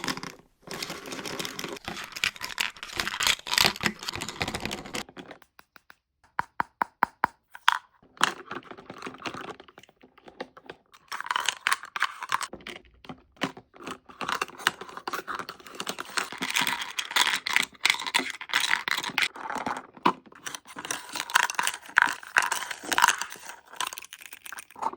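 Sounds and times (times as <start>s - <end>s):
toy kitchen pieces clicking and clattering: 0.0s - 6.0s, 7.4s - 24.9s.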